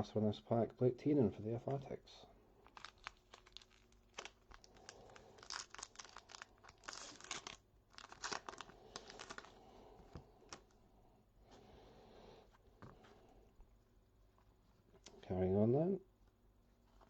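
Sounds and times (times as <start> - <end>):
wrapper tearing and crinkling: 2.6 - 9.6.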